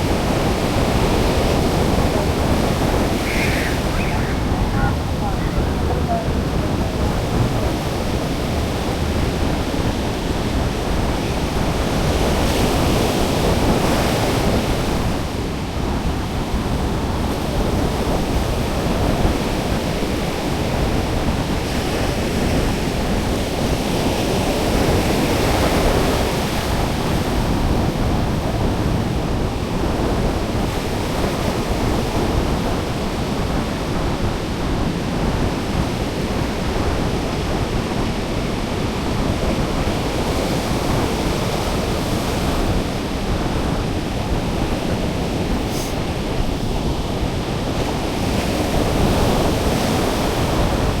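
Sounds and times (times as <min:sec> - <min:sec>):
surf breaking on beach: 0:00.0 - 0:15.5
wind rumbling on microphone: 0:00.0 - 0:51.0.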